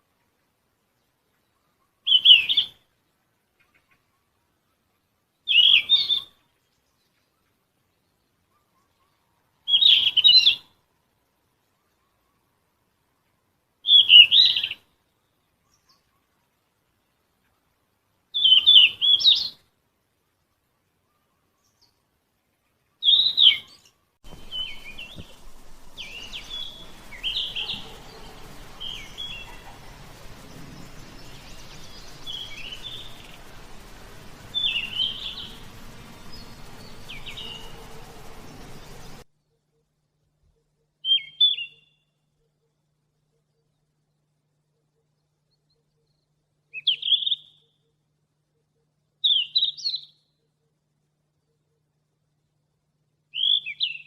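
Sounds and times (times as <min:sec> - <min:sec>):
bird chirping call notes: 0:23.0 - 0:39.6.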